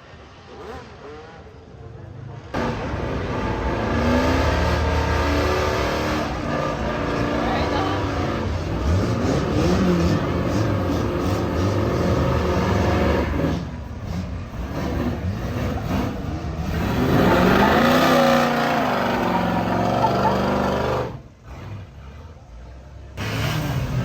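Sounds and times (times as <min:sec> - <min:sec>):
car engine revving: 0:02.5 - 0:24.0.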